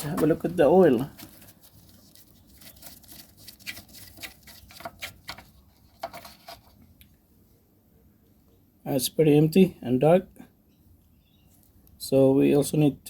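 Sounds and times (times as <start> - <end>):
faint clicks and scrapes of hands: 0.0 - 7.2.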